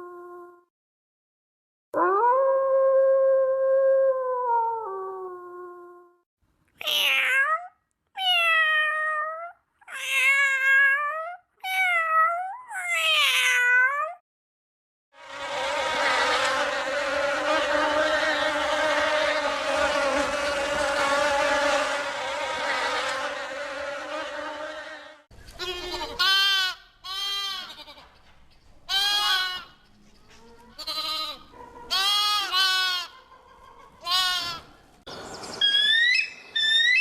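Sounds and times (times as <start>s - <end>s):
high wavering animal calls: 35.4s - 37.0s.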